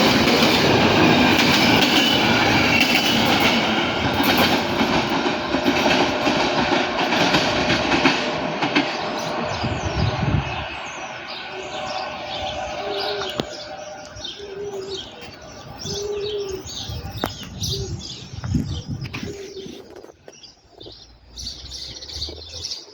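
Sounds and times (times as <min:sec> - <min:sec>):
passing train rumble: 0:00.0 - 0:22.9
small birds chirping: 0:08.7 - 0:22.9
dove cooing: 0:12.8 - 0:18.2.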